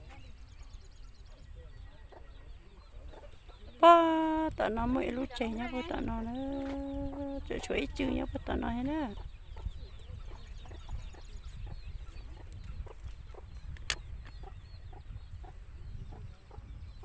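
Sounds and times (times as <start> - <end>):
birds calling: 0.0 - 17.0
sharp click: 13.7 - 14.1.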